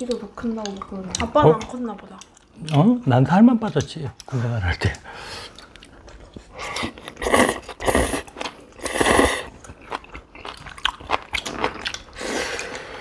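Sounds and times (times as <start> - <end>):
people chewing and biting food: 3.6 - 13.0.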